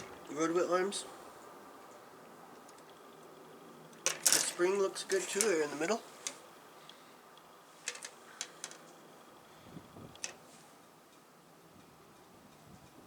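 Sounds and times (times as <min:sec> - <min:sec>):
faint room hiss: 0:00.0 - 0:13.0
plastic sprues clicking: 0:07.8 - 0:08.9.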